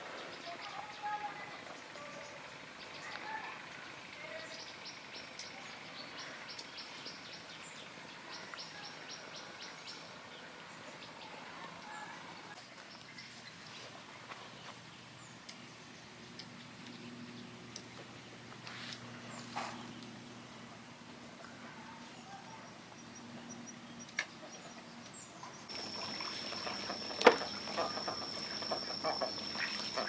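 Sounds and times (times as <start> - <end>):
faint low hum: 10.3 - 30.0
high-pitched insect drone: 25.7 - 30.0
short insect chirps: 25.7 - 30.0.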